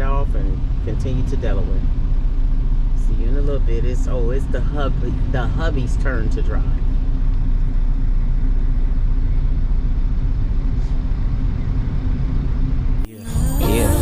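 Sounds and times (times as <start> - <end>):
truck engine rumbling: 0.0 - 14.0
hip hop music: 13.1 - 14.0.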